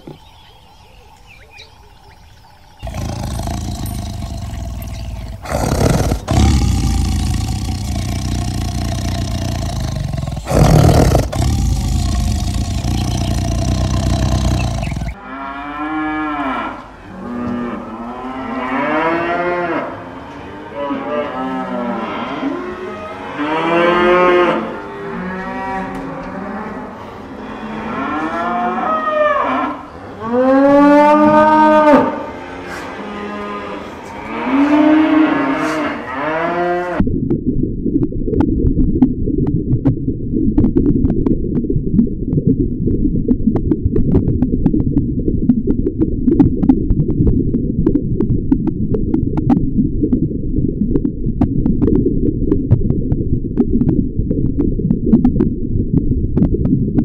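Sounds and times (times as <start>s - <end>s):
loud rough noise: 2.8s - 15.2s
cattle mooing: 2.8s - 16.7s.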